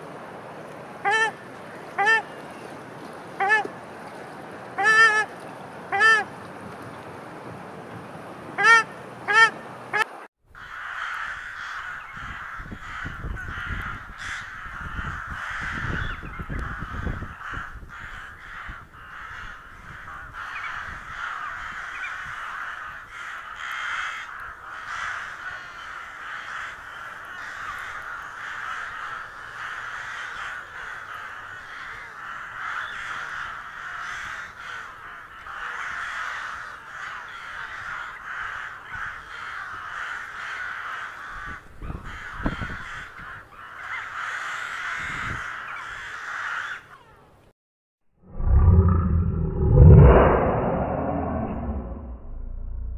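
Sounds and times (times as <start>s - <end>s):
loud honking bird calls: 4.8s - 5.3s, 8.6s - 10.1s
low rumble: 48.2s - 52.9s.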